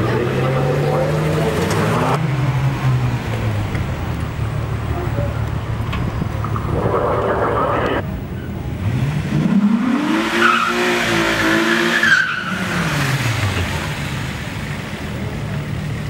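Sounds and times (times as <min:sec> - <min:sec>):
car engine revving hard: 0:00.0 - 0:03.3, 0:08.7 - 0:14.7
tyres squealing: 0:10.3 - 0:13.0.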